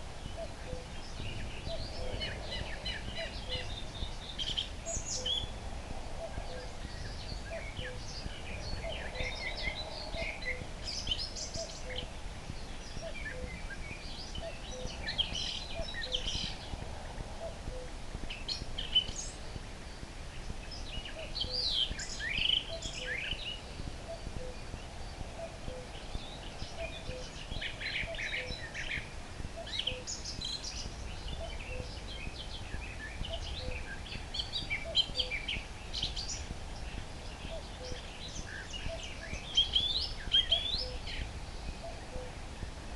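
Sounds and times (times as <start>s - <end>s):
nightingale singing: 0.0s - 42.9s.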